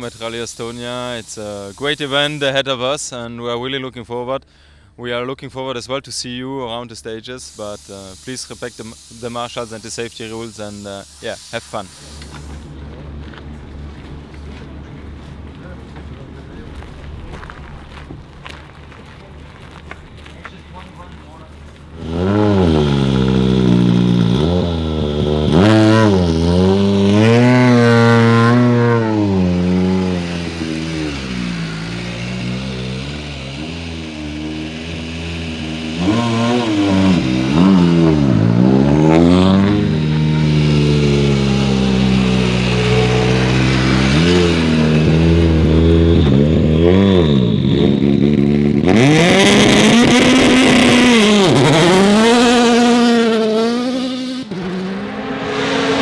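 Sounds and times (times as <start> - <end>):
rally car engine revving: 0.0 - 2.6, 7.4 - 56.0
rush of car passing close: 21.0 - 56.0.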